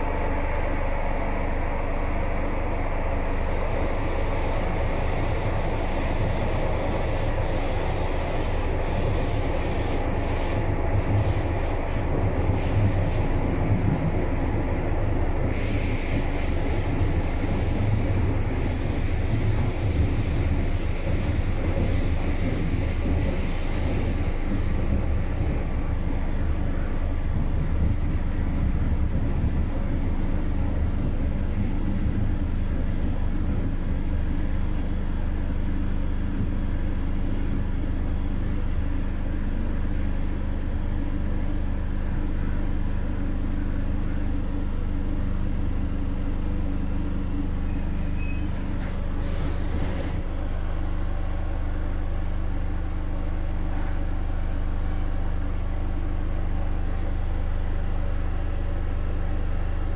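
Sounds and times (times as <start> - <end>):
train running rumble: 0.0 - 59.9
air hiss: 15.4 - 26.8.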